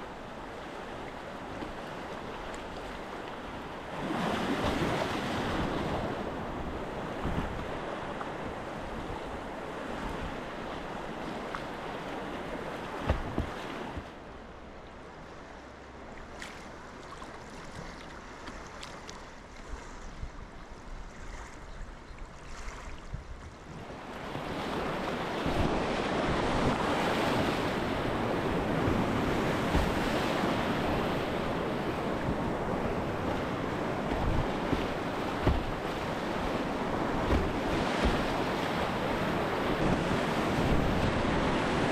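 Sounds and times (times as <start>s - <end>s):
paddle splashes: 0.3s - 14.3s, 16.1s - 20.4s, 21.0s - 41.9s
river water rushing: 24.1s - 41.9s.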